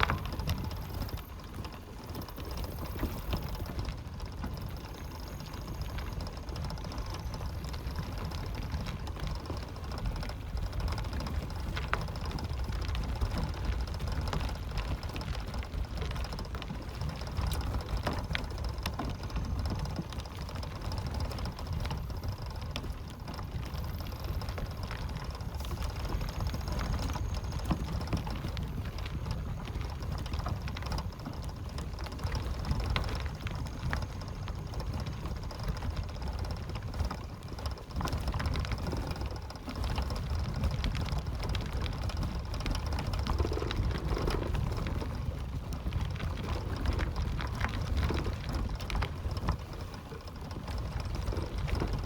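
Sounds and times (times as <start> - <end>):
steady low rumble: 0.0 - 1.6, 2.3 - 36.9.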